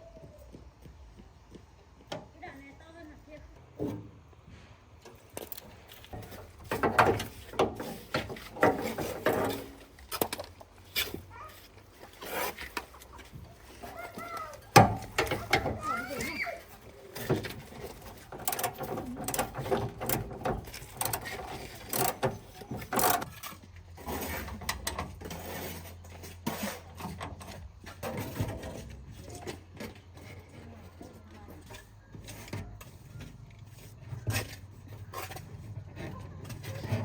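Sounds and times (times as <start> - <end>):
hand tools clicking on metal: 5.3 - 23.6.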